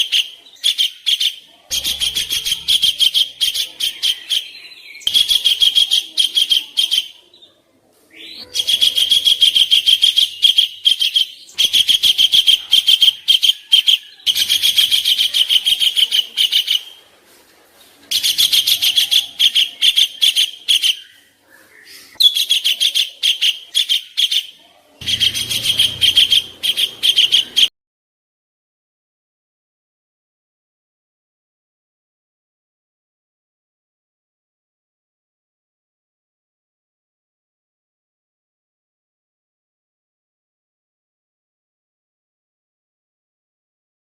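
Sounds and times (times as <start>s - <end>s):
songbird harsh song: 0.0s - 17.0s, 18.1s - 27.7s.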